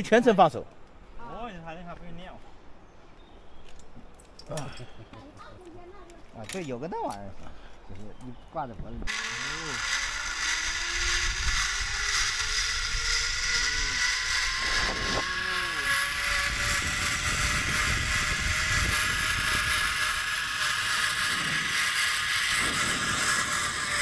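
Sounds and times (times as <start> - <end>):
zipline pulleys whining on cable: 9.1 - 24.0
wind on microphone: 10.7 - 24.0.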